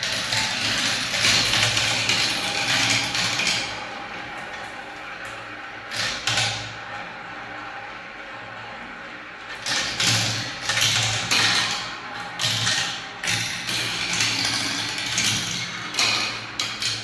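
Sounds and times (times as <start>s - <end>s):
marbles rolling down track: 0.0s - 3.8s, 9.7s - 17.0s.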